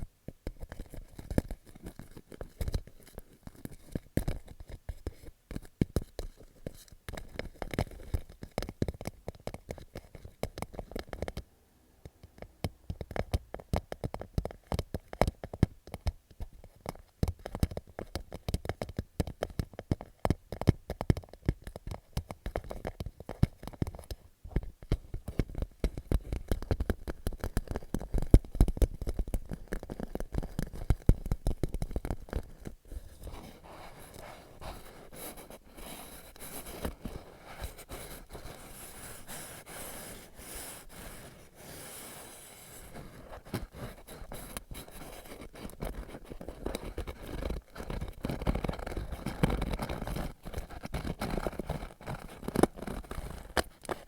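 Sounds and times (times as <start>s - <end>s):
fingernails tapping on plastic pouch: 12.4s - 54.0s.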